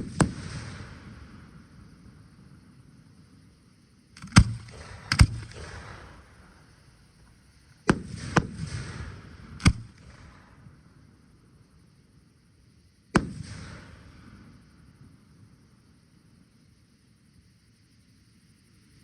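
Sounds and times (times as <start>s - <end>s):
fireworks bangs: 0.0s - 1.8s, 4.2s - 10.8s, 13.2s - 14.7s.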